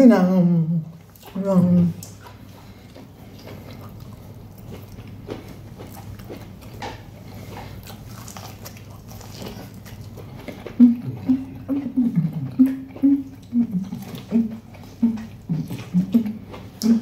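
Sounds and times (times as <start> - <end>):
person biting and chewing: 2.0 - 11.8.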